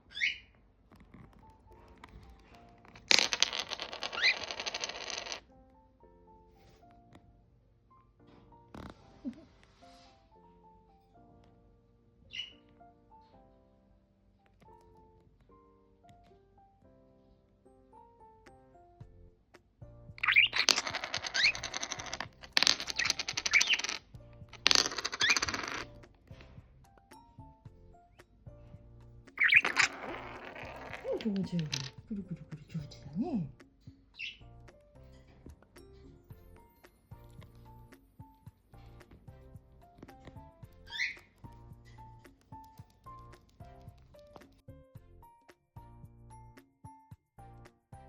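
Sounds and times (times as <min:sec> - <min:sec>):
soft background music: 0:00.0 - 0:04.8, 0:05.4 - 0:48.0
budgerigar rising chirp: 0:00.1 - 0:00.5, 0:12.3 - 0:12.6, 0:29.4 - 0:29.7, 0:34.2 - 0:34.5, 0:40.9 - 0:41.3.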